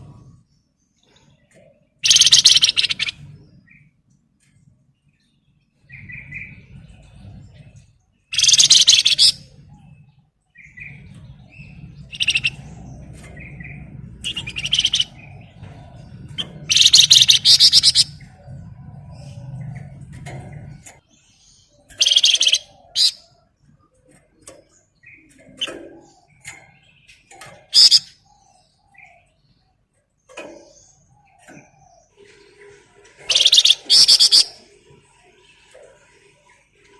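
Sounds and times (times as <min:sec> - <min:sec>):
songbird singing: 0:00.0 - 0:36.9
low hum: 0:10.9 - 0:21.0.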